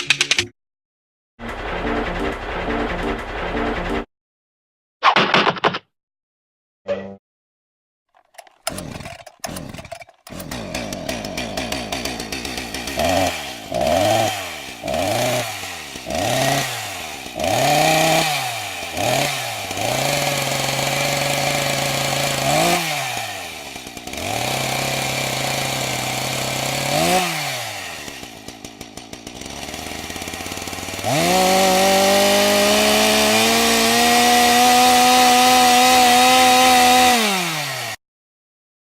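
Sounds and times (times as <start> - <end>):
small petrol engine revving: 8.4 - 38.0.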